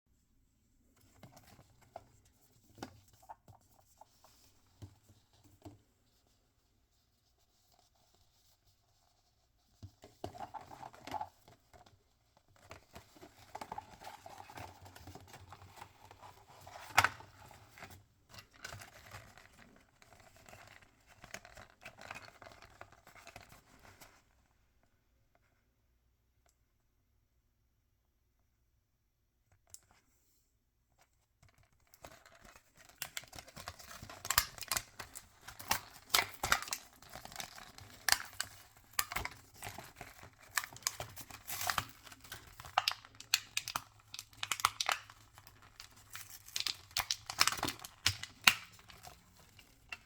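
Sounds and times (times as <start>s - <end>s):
wrapping crinkling and tearing: 31.6s - 50.0s.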